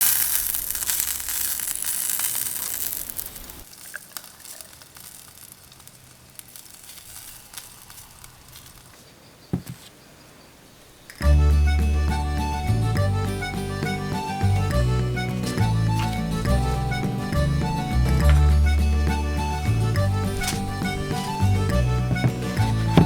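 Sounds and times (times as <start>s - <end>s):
chicken skin sizzling on grill: 0.0s - 9.0s
low thump: 21.7s - 23.0s.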